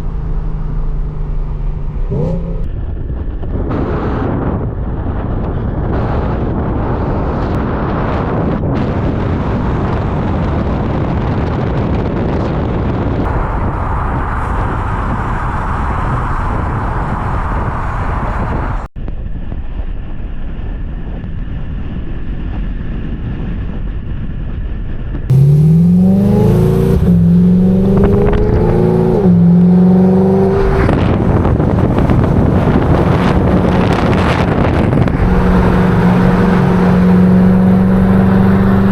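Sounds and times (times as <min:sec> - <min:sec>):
car engine accelerating hard: 0:00.0 - 0:03.0, 0:25.3 - 0:38.9
road and wind noise: 0:00.0 - 0:38.9.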